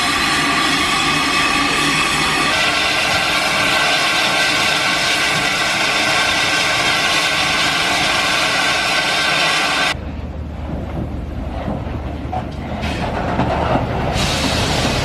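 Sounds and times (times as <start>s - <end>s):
train rushing by: 0.0s - 15.0s.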